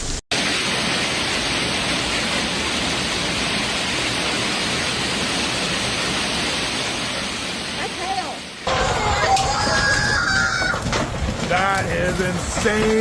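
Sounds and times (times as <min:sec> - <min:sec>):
heavy hail and rain pouring: 0:07.6 - 0:13.0.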